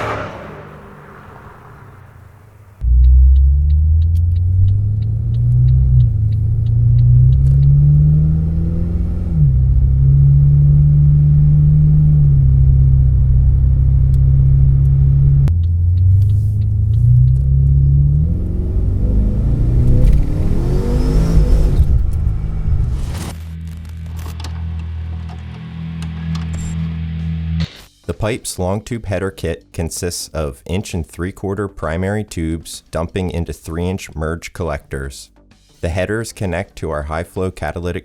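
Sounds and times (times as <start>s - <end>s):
car exhaust accelerating: 0.0s - 23.3s.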